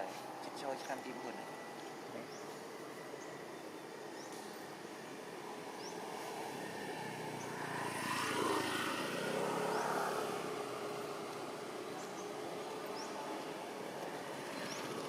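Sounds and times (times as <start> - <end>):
vehicle engine passing by: 5.8 - 15.0.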